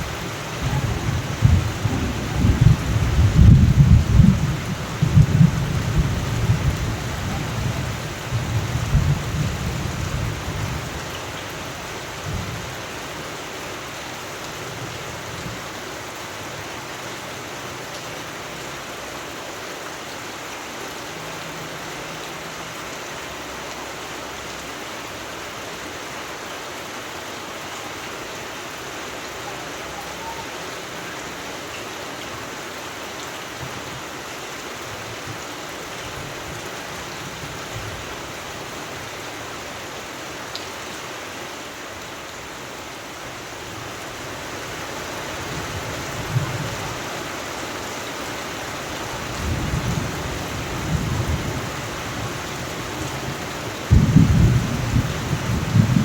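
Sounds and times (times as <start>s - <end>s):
rumble of thunder: 0.0s - 10.9s, 53.0s - 56.0s
steady rain: 0.0s - 56.0s.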